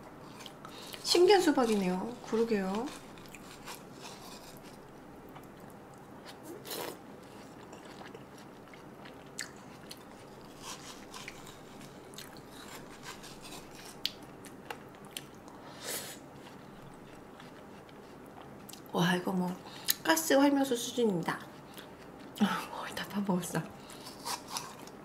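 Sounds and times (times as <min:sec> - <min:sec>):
chewing watermelon: 0:00.2 - 0:15.6, 0:16.2 - 0:18.9, 0:23.8 - 0:25.0.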